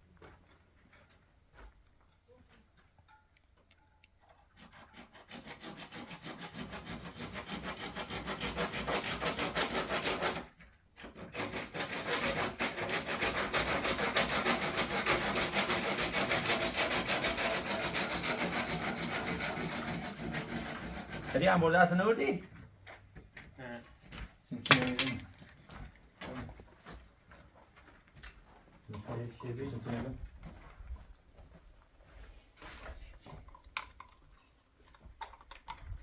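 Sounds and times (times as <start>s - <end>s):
hand saw strokes: 4.4s - 22.0s.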